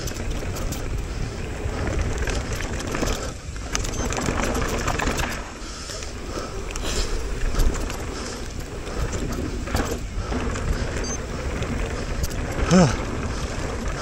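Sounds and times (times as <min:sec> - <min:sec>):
chain and frame rattling: 0:00.0 - 0:01.0, 0:01.8 - 0:05.5
tyres rolling over dirt: 0:00.0 - 0:14.0
wind rushing on microphone: 0:00.0 - 0:14.0.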